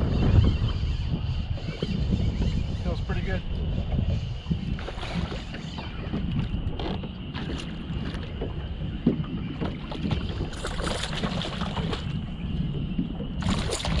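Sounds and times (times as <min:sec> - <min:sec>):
wind buffeting microphone: 0:00.0 - 0:14.0
small knocks on boat: 0:04.5 - 0:12.2.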